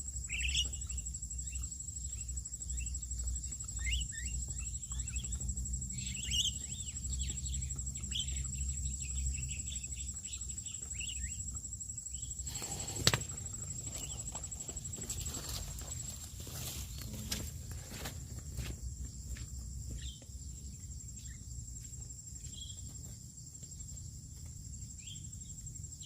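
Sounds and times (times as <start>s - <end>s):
birds chirping: 0.0s - 17.9s, 19.8s - 21.6s, 22.3s - 22.9s.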